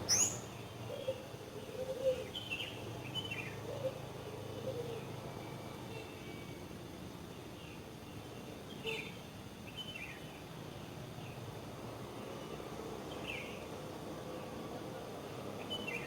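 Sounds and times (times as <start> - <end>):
small bird chirping: 0.0 - 0.6
wind: 0.0 - 16.0.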